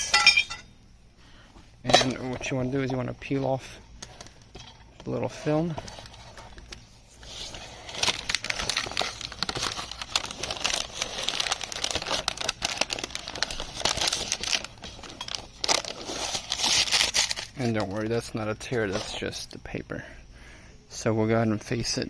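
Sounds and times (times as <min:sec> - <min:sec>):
paper film peeling crinkling: 0:05.8 - 0:19.2.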